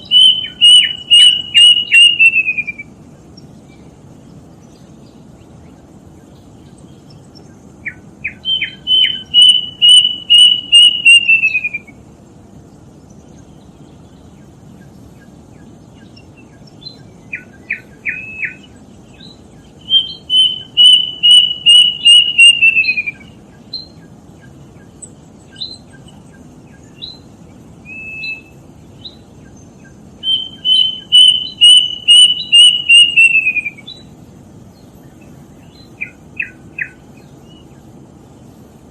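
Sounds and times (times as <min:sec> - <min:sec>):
cuckoo singing whistled notes: 0:00.0 - 0:03.0, 0:07.8 - 0:12.0, 0:16.4 - 0:24.0, 0:25.5 - 0:29.2, 0:29.8 - 0:34.1, 0:35.6 - 0:37.7.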